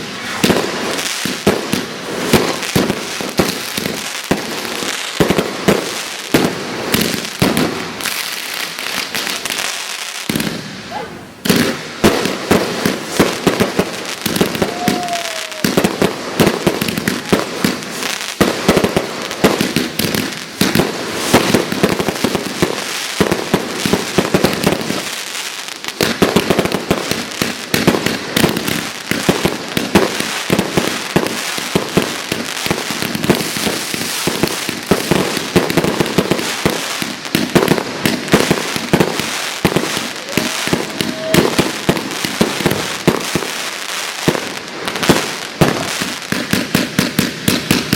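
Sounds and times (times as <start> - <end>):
firework whistle: 0.0 - 1.0, 14.3 - 18.1, 39.6 - 42.0
fireworks bangs and crackling: 0.0 - 47.9.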